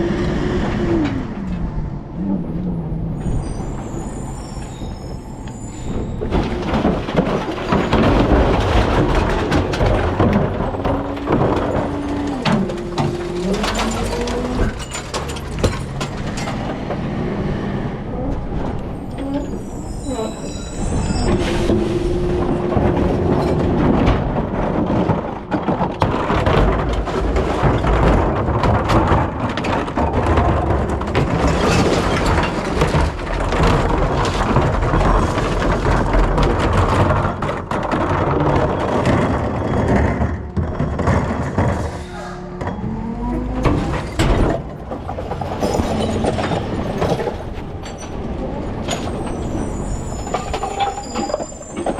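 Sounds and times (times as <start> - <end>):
garbage truck engine rumble: 0.0 - 51.9
metal parts clanking: 6.2 - 16.9, 43.5 - 51.9.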